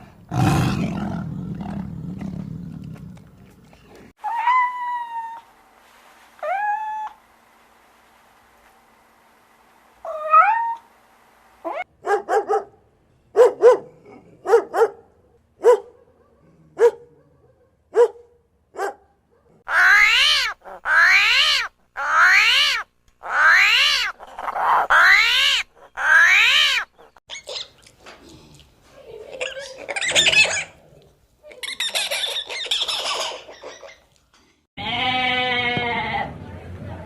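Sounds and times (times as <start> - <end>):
animal rising and falling calls: 19.7 - 27.2
animal yelping: 19.7 - 27.7.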